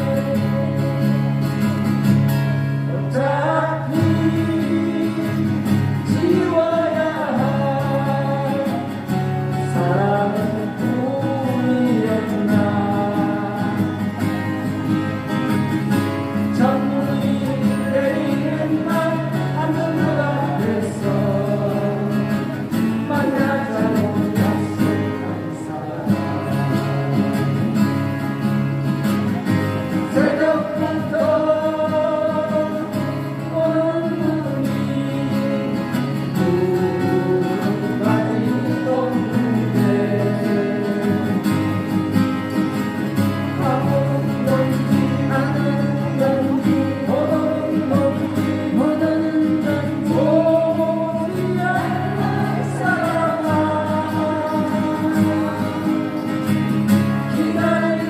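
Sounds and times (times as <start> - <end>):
person singing: 0.0 - 1.2, 2.9 - 14.2, 30.1 - 41.8, 43.3 - 56.4, 57.1 - 58.0
acoustic guitar band playing: 0.0 - 58.0.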